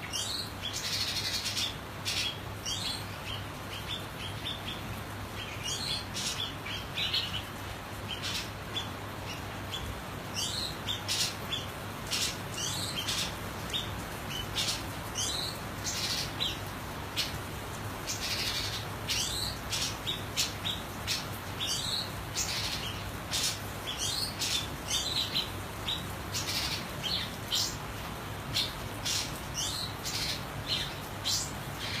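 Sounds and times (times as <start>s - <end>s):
bird chirping calls: 18.0s - 27.8s, 28.5s - 32.0s.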